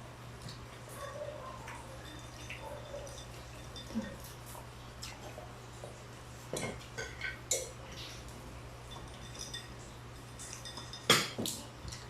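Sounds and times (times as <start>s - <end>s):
cutlery and dishes clinking: 8.9s - 11.6s.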